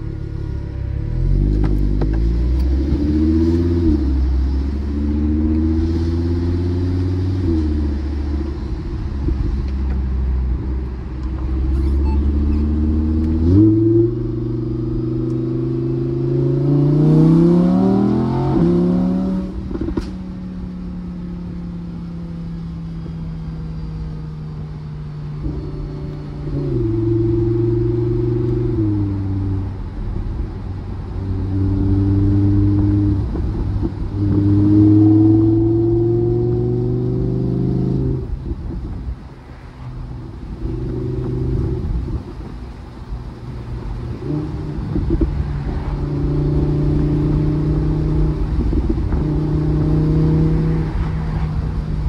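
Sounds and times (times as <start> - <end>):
car engine revving and accelerating: 0.0 - 52.0.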